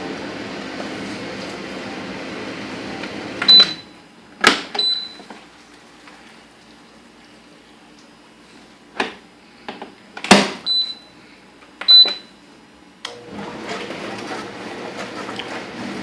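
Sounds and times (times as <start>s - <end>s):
dishwasher motor humming: 0.0s - 6.8s, 13.0s - 16.0s.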